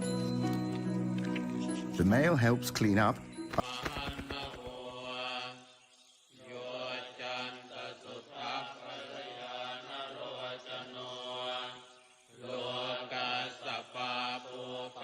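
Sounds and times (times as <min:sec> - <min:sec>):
low monotone chanting: 0:03.5 - 0:15.0.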